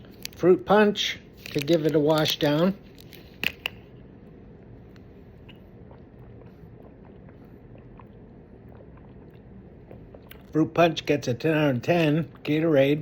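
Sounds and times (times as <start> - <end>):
mouth and swallowing sounds: 4.6 - 10.6, 11.9 - 13.0.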